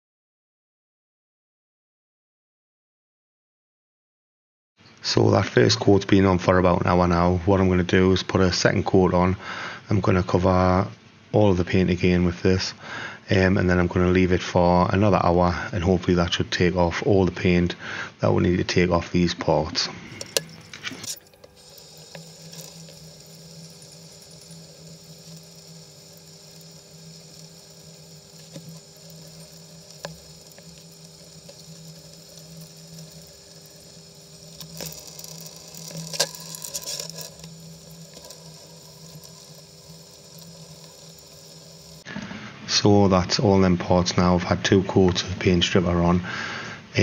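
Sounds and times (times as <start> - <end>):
steady low hum: 19.9 - 42.8
toothbrush scrubbing metal parts: 20.1 - 42.0.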